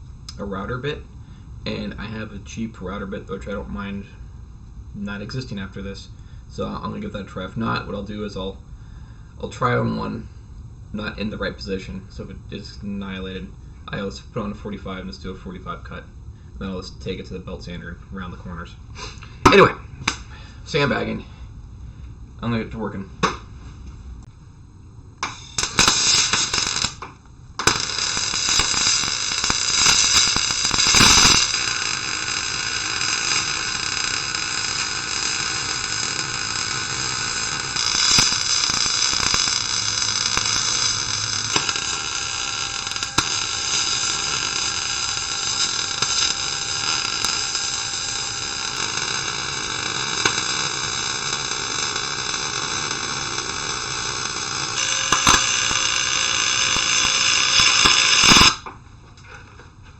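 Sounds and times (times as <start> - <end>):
arc welding crackling hiss: 18.2 - 58.7.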